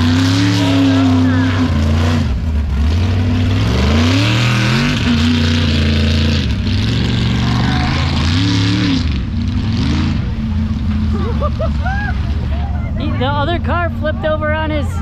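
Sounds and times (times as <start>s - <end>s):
truck engines revving hard: 0.0s - 15.0s
steady rushing noise: 6.5s - 10.8s.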